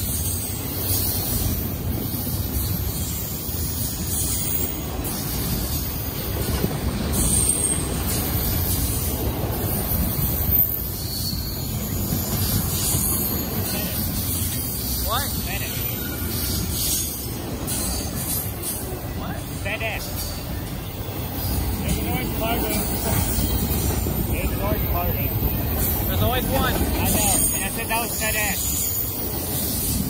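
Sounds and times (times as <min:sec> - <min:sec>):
freight train wheels on rails: 0:00.0 - 0:30.0.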